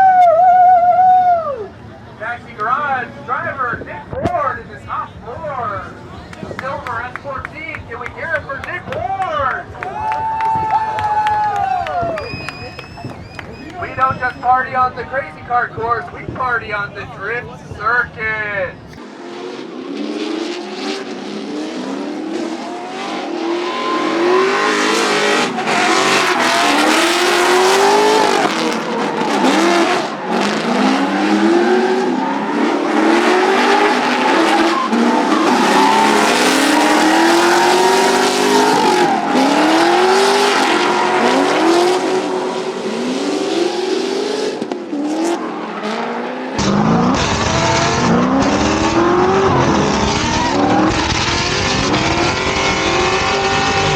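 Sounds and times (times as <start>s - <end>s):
car engines revving: 10.7s - 53.9s
tyres squealing: 23.7s - 30.2s, 33.9s - 41.7s.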